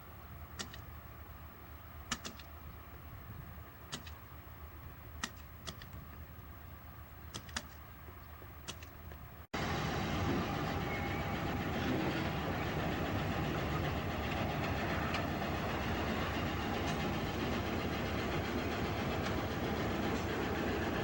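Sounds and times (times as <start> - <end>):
freight train rumbling on rails: 9.6 - 21.0.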